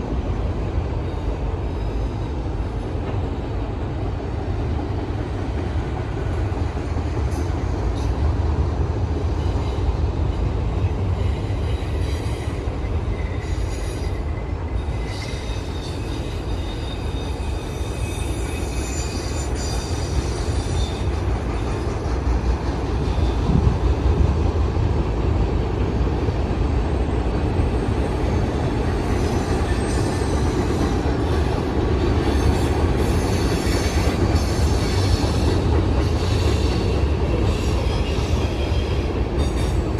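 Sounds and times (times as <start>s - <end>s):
train wheels rumbling on rail: 0.0s - 39.9s
high wheel squeal: 11.2s - 22.0s.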